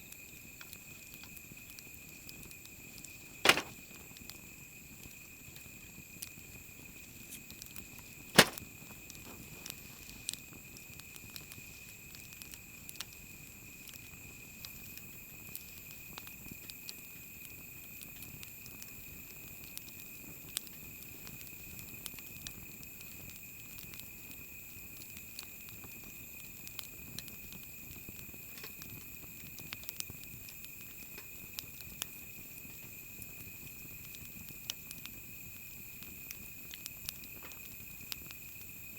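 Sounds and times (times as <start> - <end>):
wood fire crackling: 0.5 - 4.4, 8.4 - 8.6
sharp loud pop: 3.4 - 3.9, 8.4 - 8.6.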